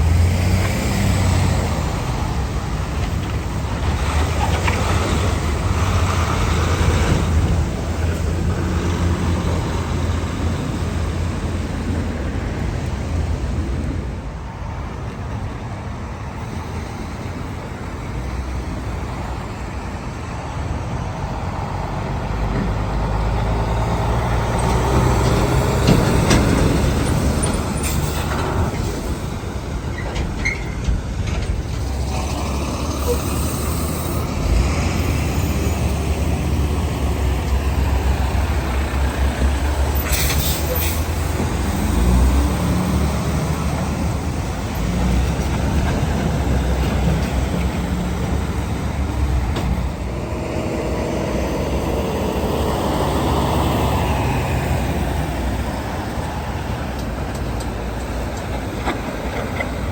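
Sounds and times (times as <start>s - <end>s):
diesel trucks driving past: 0.0s - 59.9s.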